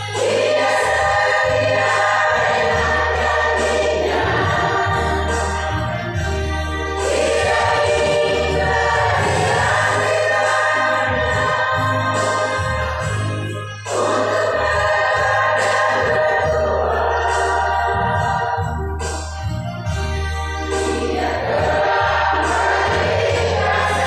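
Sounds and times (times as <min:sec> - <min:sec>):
choir singing: 0:00.0 - 0:19.2, 0:20.6 - 0:24.0
low bass line: 0:01.0 - 0:10.2, 0:14.6 - 0:24.0.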